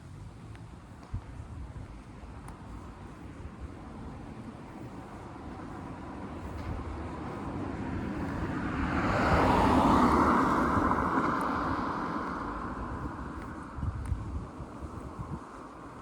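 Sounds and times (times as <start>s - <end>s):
vehicle passing close by: 6.6s - 14.0s.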